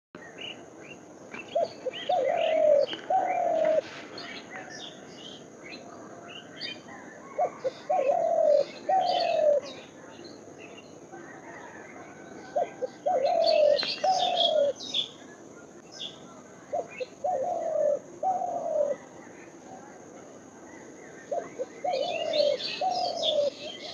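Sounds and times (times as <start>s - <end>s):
small birds chirping: 0.2s - 23.9s
dove cooing: 1.4s - 4.7s, 6.1s - 9.8s, 11.3s - 14.9s, 16.7s - 19.6s, 20.7s - 23.9s.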